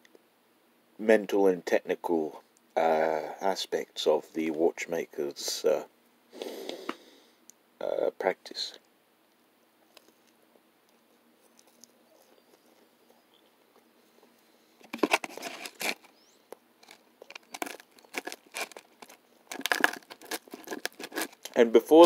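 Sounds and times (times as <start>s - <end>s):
crunching toast: 14.8s - 16.1s, 16.8s - 22.0s
knife and fork on paper plate: 19.5s - 21.5s.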